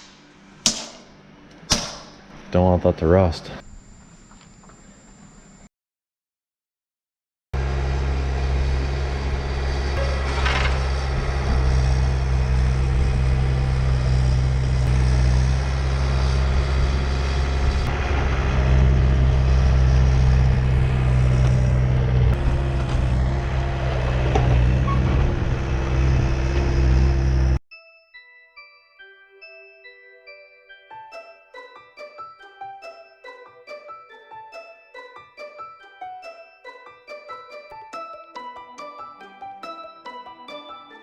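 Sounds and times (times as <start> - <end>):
diesel engine droning: 7.6 - 27.6
steady higher tone: 9.9 - 11.5.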